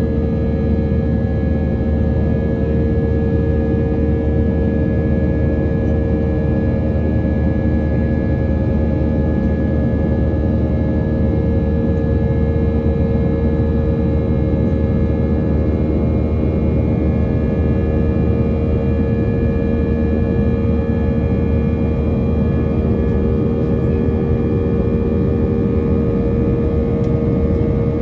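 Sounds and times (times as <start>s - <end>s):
jet engine rush in cabin: 0.0s - 28.0s.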